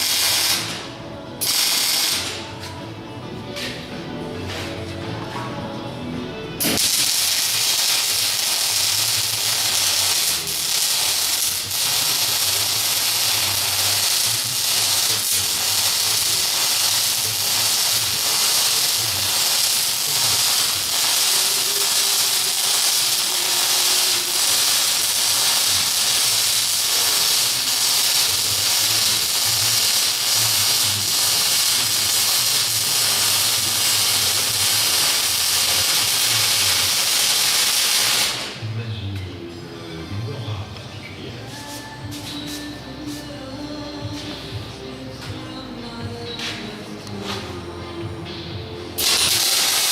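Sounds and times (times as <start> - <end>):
welding arc crackling: 0.0 - 2.5, 6.6 - 38.6, 49.0 - 49.9.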